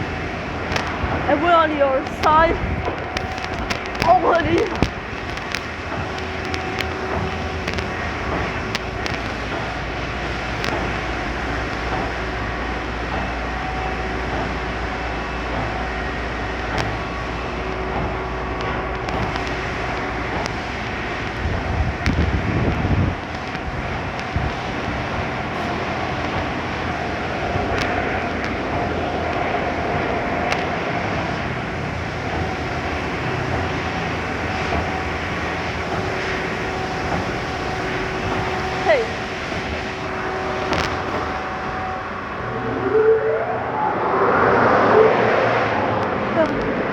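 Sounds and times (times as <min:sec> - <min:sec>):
car wash spray and pump: 0:00.0 - 0:42.6
low rumble: 0:00.0 - 0:46.9
clicks: 0:00.6 - 0:01.1, 0:02.0 - 0:12.3, 0:16.5 - 0:29.7, 0:30.4 - 0:30.8, 0:37.1 - 0:41.8.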